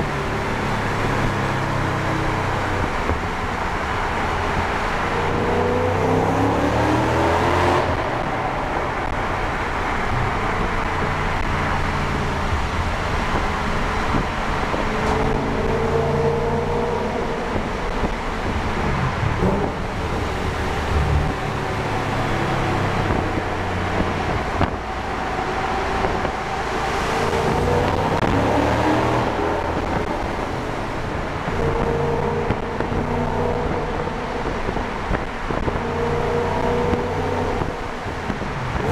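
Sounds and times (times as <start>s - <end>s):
car engine accelerating in tunnel: 0.0s - 38.9s.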